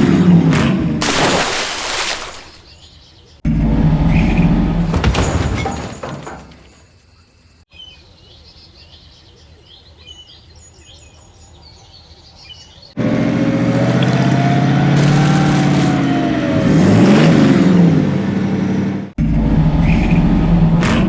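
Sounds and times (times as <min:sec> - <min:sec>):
faint birds chirping: 0:06.4 - 0:15.2
truck engine running: 0:13.0 - 0:20.8.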